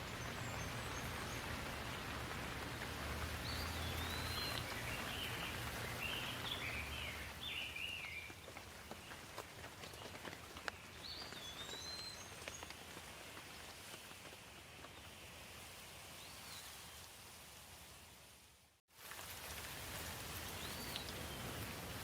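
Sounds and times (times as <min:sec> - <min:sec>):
raindrops ticking: 0:00.0 - 0:13.8, 0:19.0 - 0:22.0
light rain falling: 0:00.0 - 0:22.0.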